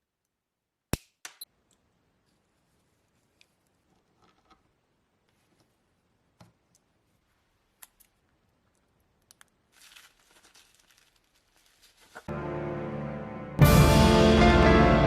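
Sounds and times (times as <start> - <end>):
small objects clicking: 7.8 - 11.8
brief rustle: 9.7 - 12.3
music: 12.3 - 15.0.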